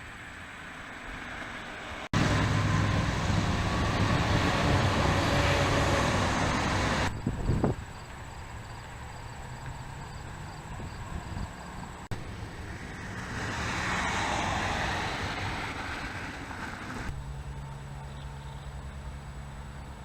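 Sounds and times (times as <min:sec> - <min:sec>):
street traffic noise: 0:00.0 - 0:20.0
vehicle passing by: 0:00.8 - 0:07.1, 0:09.0 - 0:20.0
wind rumble on microphone: 0:02.2 - 0:08.8, 0:09.6 - 0:12.1.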